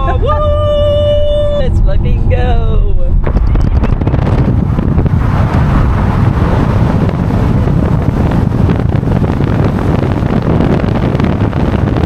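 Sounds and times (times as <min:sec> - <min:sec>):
moving car running noise: 0:00.0 - 0:12.0
wind buffeting microphone: 0:00.0 - 0:12.0.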